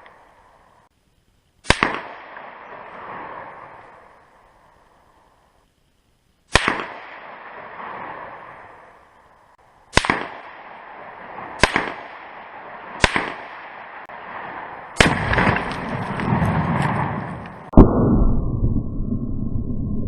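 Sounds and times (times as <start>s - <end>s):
rifle shots with echo: 1.6s - 4.3s, 6.5s - 9.1s, 9.9s - 17.7s
low explosion rumble: 14.4s - 20.0s.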